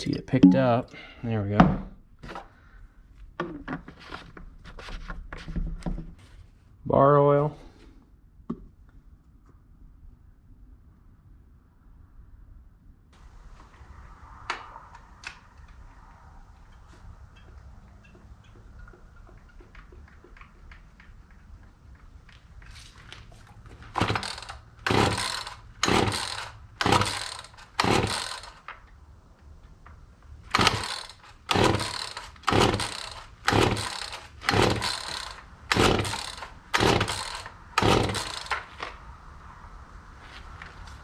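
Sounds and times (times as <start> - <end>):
chainsaw starter cord pulls: 22.7 - 28.8, 30.5 - 39.0.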